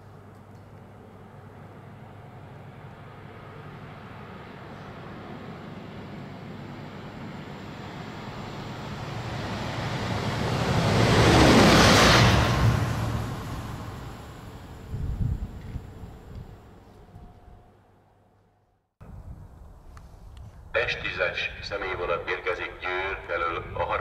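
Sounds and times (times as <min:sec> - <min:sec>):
fast train rushing past: 0:01.1 - 0:17.9.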